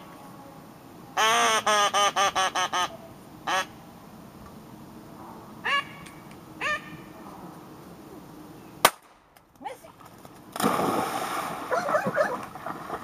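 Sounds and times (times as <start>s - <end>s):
duck call quacks: 1.2s - 2.9s, 3.5s - 3.7s, 5.6s - 6.0s, 6.6s - 6.9s.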